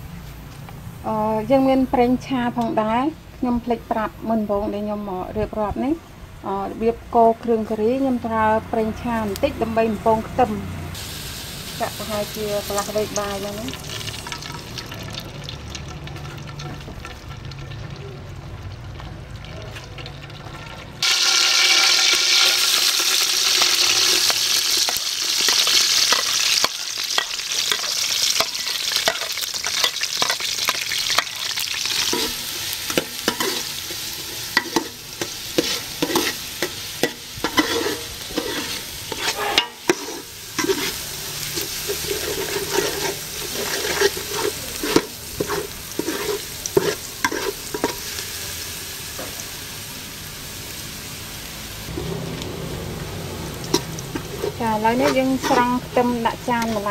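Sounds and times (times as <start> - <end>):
food sizzling in hot oil: 6.6 - 56.9
spatula scraping and clacking: 24.0 - 31.4, 32.0 - 48.0, 53.7 - 56.8.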